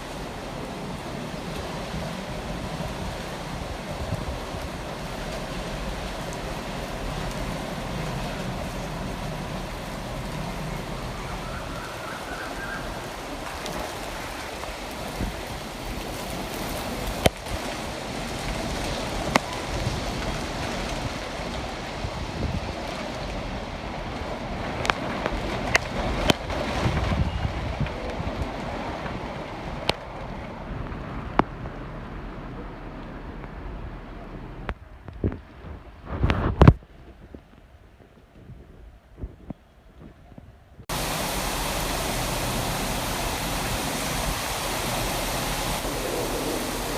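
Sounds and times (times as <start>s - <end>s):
raindrops ticking: 0.0s - 27.1s, 27.8s - 35.5s
rain falling: 0.0s - 39.3s, 40.8s - 46.9s.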